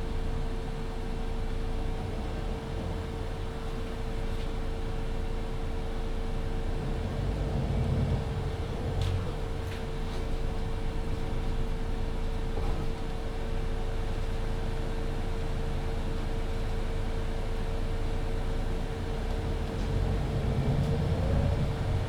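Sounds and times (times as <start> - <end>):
bus drivetrain hum: 0.0 - 22.0
low rumble: 19.7 - 22.0.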